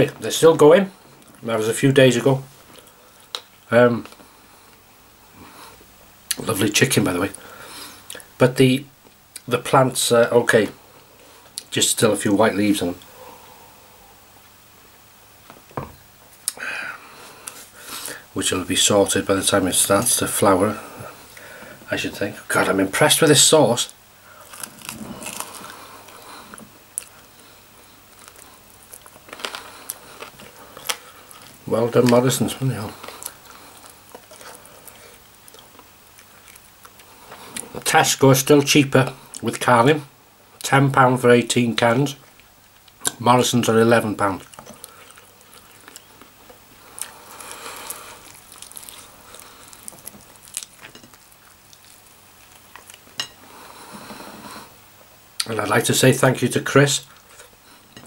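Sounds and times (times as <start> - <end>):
wet chewing sounds: 24.4 - 27.4, 28.1 - 32.2, 32.9 - 37.8, 44.4 - 54.5.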